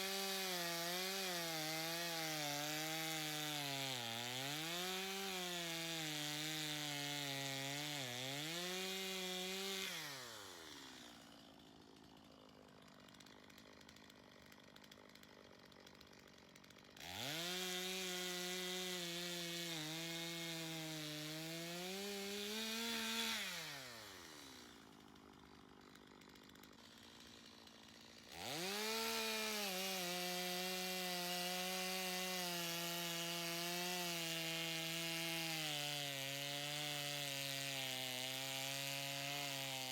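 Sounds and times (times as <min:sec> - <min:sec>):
chainsaw cutting a log: 0:00.0 - 0:39.9.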